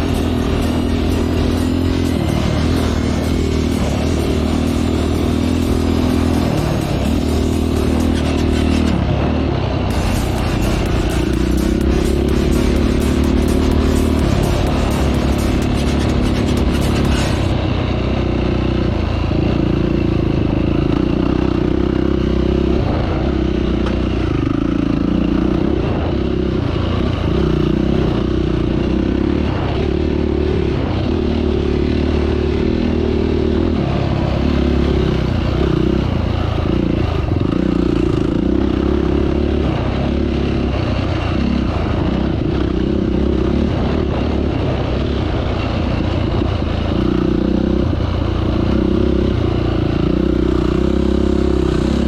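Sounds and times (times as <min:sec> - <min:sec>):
off-road vehicle engine revving: 0:00.0 - 0:52.0
rattling and scraping: 0:09.9 - 0:17.6.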